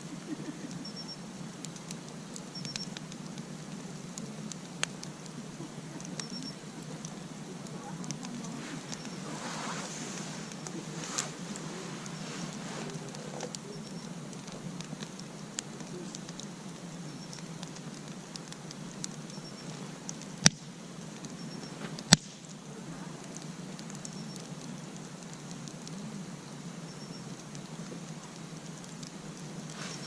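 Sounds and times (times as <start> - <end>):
campfire crackling: 0.0 - 30.0
loud sharp fire pops: 7.1 - 22.6.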